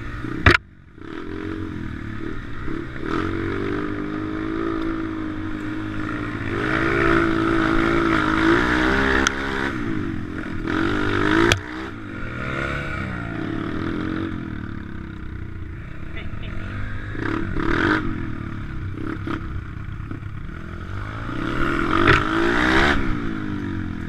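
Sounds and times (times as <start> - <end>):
motorbike engine revving: 0.0 - 24.0
sharp knocks: 0.4 - 0.6.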